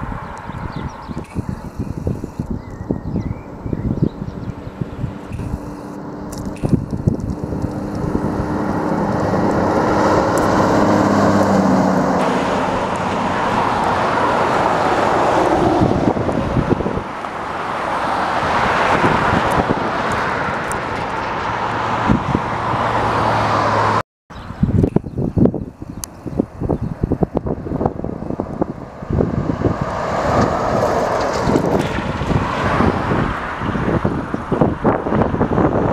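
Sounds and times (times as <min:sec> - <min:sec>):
trucks passing on road: 0:00.0 - 0:35.9.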